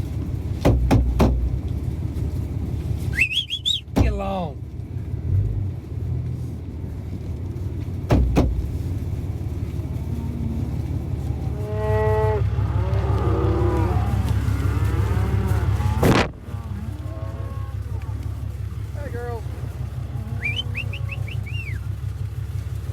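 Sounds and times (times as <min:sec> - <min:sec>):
low engine rumble: 0:00.0 - 0:22.9
short sharp knocks: 0:00.6 - 0:01.6, 0:08.1 - 0:08.8
cows mooing: 0:08.2 - 0:21.9.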